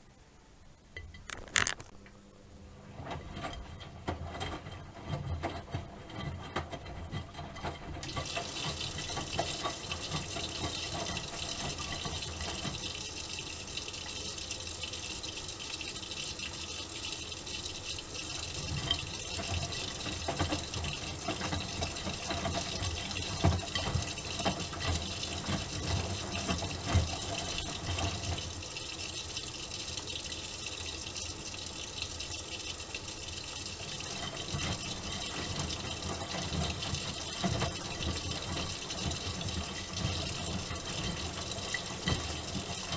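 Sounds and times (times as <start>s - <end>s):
water hissing into washing machine: 2.9s - 42.9s.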